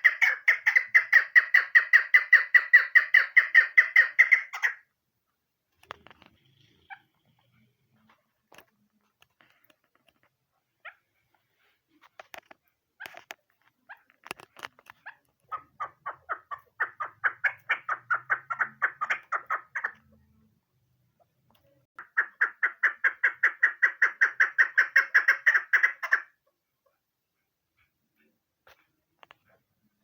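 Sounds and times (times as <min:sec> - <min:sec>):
partridge chuck calls: 0:00.0 - 0:04.9, 0:13.0 - 0:20.3, 0:22.0 - 0:26.5.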